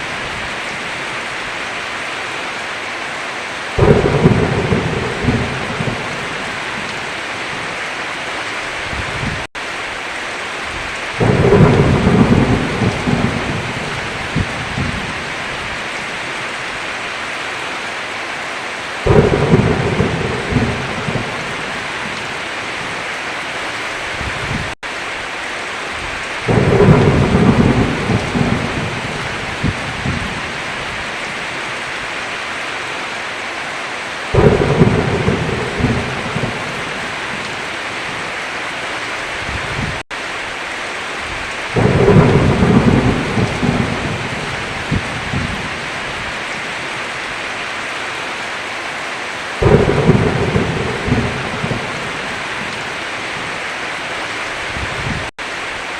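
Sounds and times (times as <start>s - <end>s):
heavy rain: 0.0s - 55.9s
thunder rumbling: 3.8s - 7.7s, 10.7s - 16.1s, 19.0s - 23.0s, 26.0s - 31.4s, 34.3s - 38.3s, 41.3s - 46.6s, 49.6s - 53.6s.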